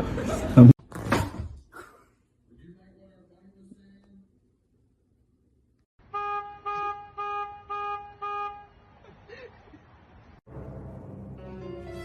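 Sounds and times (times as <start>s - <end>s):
horn honking short toots: 6.1s - 8.7s.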